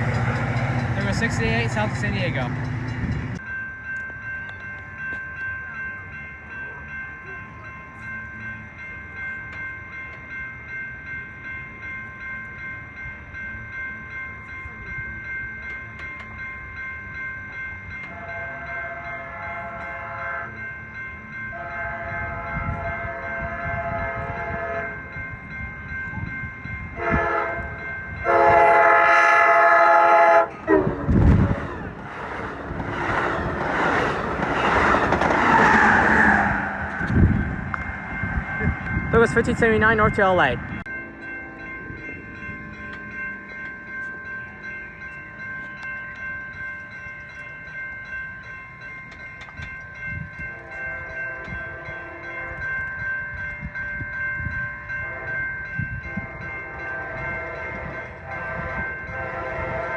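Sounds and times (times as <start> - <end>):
crossing bells ringing: 0.0 - 59.9
train rumbling: 0.0 - 59.9
train horn blasts: 18.1 - 20.6, 21.5 - 25.0, 27.0 - 31.5, 56.1 - 59.9.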